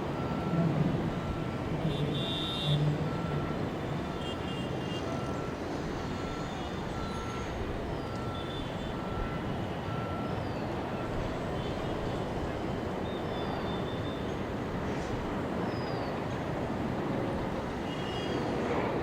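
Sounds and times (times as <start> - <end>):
engine and traffic noise: 0.0 - 19.0
reversing alarm beeping: 0.1 - 11.3.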